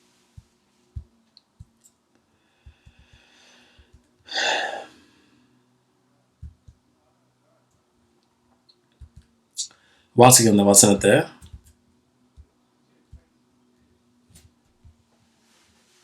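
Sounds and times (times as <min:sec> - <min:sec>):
quiet breath: 0:02.2 - 0:06.0, 0:09.7 - 0:10.2
man sighing: 0:03.6 - 0:05.0.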